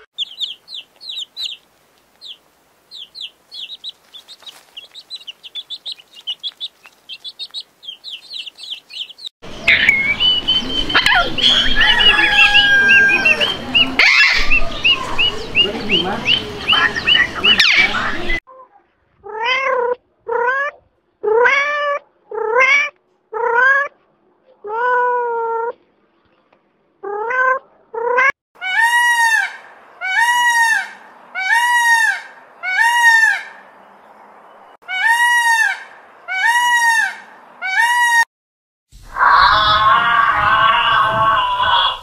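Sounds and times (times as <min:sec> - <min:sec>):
peacock calling: 0:00.0 - 0:18.4, 0:27.0 - 0:33.8, 0:34.8 - 0:38.3, 0:39.2 - 0:42.0.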